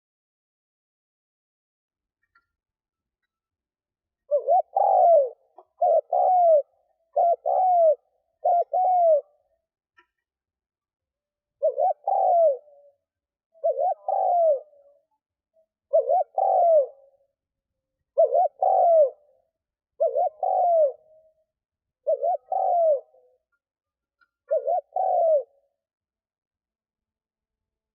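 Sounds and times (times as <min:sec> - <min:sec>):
dove cooing: 0:04.2 - 0:09.5, 0:11.6 - 0:15.1, 0:15.9 - 0:17.3, 0:18.1 - 0:21.4, 0:22.0 - 0:23.5, 0:24.4 - 0:25.8.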